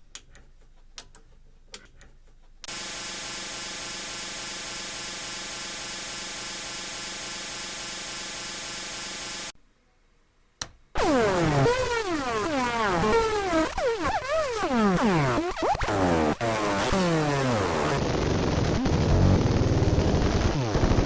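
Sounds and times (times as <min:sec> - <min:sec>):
small sharp clicks: 0:00.1 - 0:02.2.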